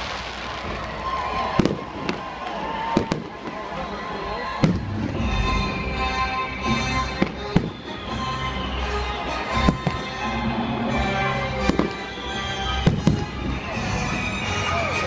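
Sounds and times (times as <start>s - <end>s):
fireworks bangs: 0.0s - 14.9s
music playing: 4.4s - 15.0s.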